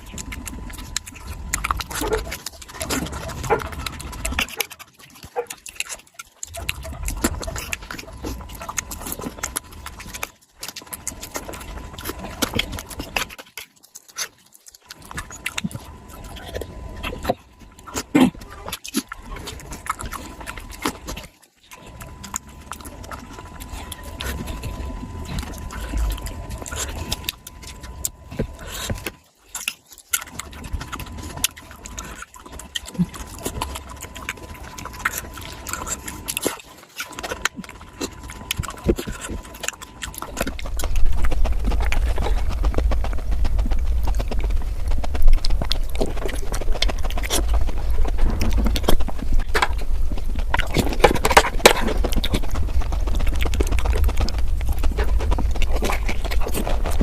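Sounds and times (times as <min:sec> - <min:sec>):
low rumble: 0:37.8 - 0:57.0.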